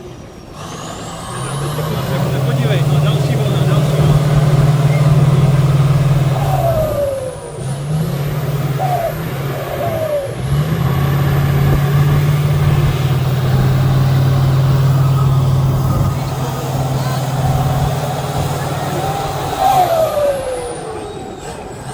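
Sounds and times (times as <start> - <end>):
truck engine running hard: 0.0 - 21.9.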